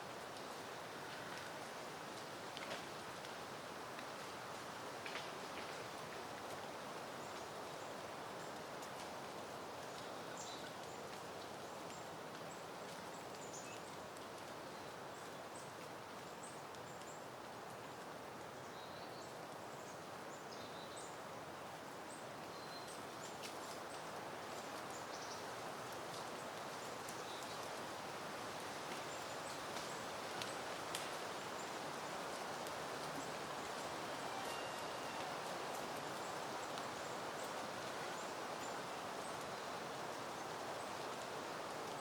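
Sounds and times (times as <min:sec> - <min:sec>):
wind rustling through foliage: 0:00.0 - 0:42.0.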